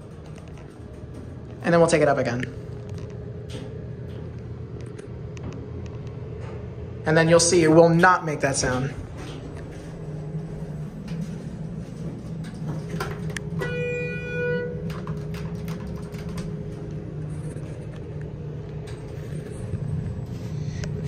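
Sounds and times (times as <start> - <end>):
elevator machinery hum: 0.0 - 21.0
electronic chime tone: 13.6 - 14.8.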